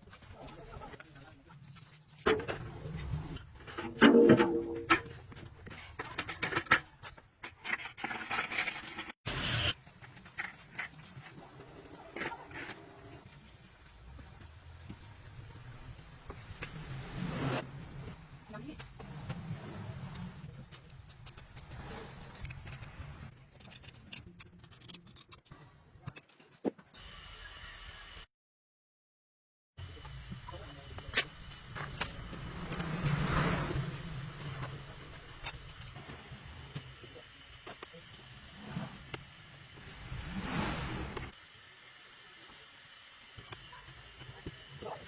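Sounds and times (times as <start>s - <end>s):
low hum: 2.6s - 5.3s.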